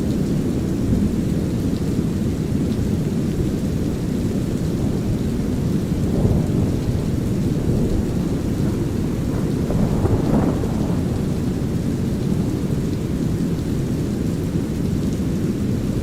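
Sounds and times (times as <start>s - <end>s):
light rain: 0.0s - 16.0s
low rolling thunder: 4.8s - 13.6s.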